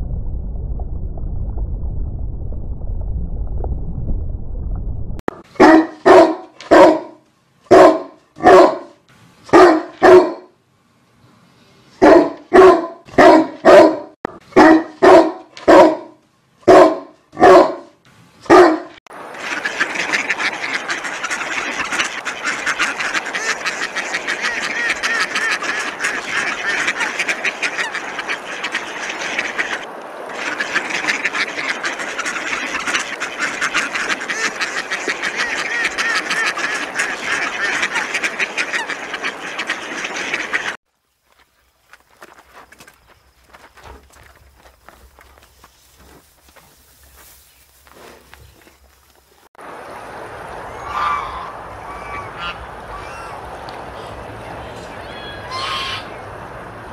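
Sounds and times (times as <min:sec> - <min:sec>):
dog barking: 0:05.6 - 0:10.5, 0:12.0 - 0:17.9, 0:18.5 - 0:19.0
ducks quacking: 0:19.2 - 0:40.8, 0:50.7 - 0:56.3.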